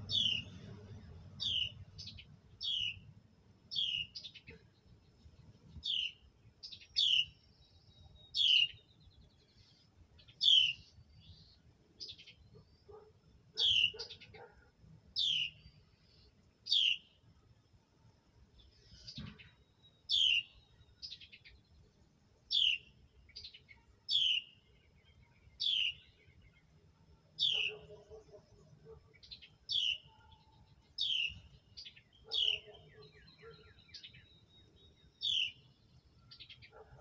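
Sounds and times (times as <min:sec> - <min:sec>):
short bird chirps: 0:00.1 - 0:00.6.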